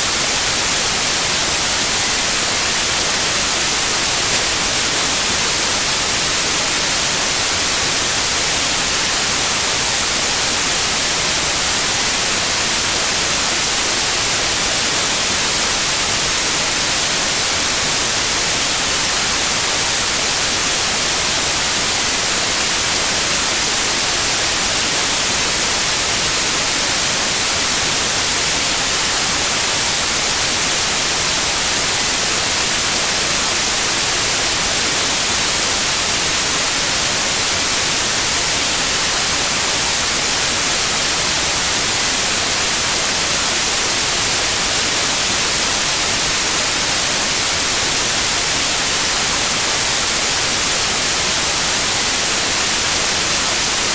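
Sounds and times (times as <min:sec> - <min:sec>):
high-pitched pure tone: 0:00.0 - 0:53.9
white noise hiss: 0:00.0 - 0:53.9.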